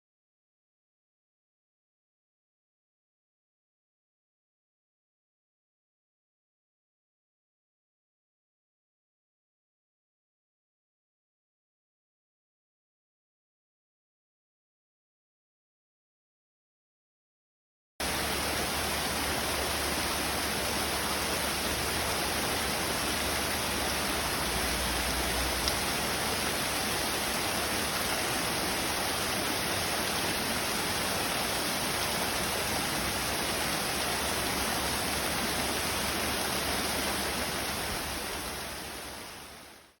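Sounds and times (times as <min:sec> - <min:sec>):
small stream flowing: 0:18.0 - 0:40.0.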